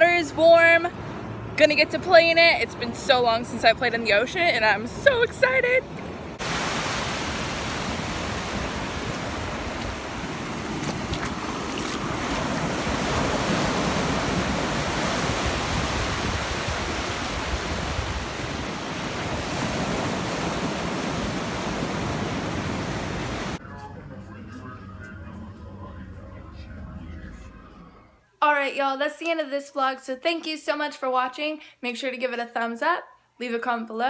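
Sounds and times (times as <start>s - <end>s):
ocean surf washing: 2.4s - 23.6s
wind buffeting microphone: 6.3s - 23.6s.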